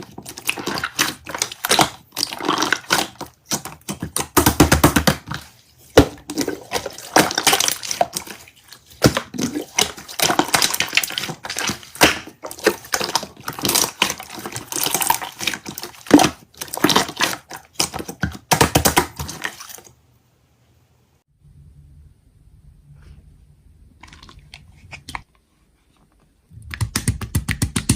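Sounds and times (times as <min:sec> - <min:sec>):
slime squished by hand: 0:00.0 - 0:19.9.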